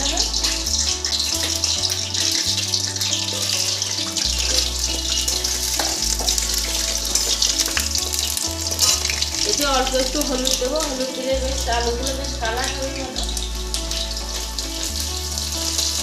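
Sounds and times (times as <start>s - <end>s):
background music with bass line: 0.0s - 16.0s
potato chunks sizzling in oil: 0.0s - 16.0s.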